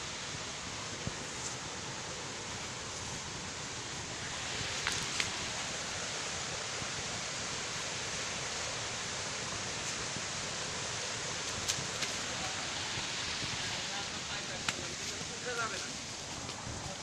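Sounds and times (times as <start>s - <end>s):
water running over rocks: 0.0s - 17.0s.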